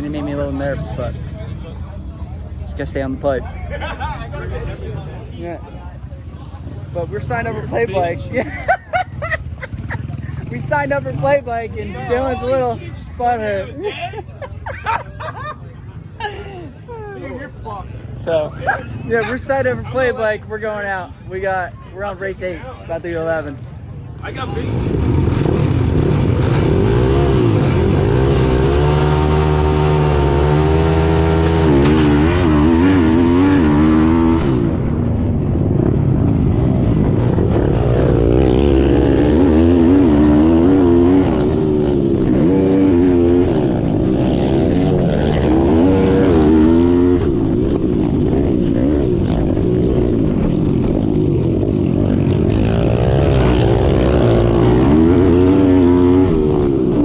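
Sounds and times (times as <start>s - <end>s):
small motorbike engines revving: 7.0s - 13.6s, 24.3s - 35.1s, 36.5s - 57.0s.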